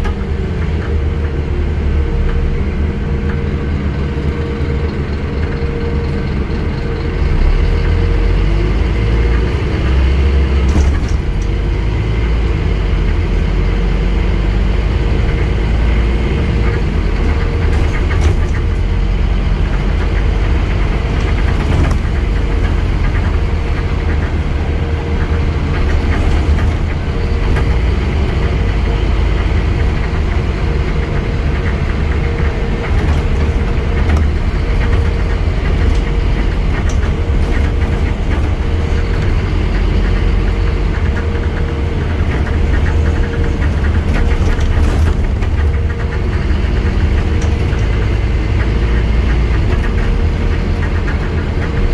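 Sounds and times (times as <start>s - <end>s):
bus engine droning: 0.0s - 51.9s.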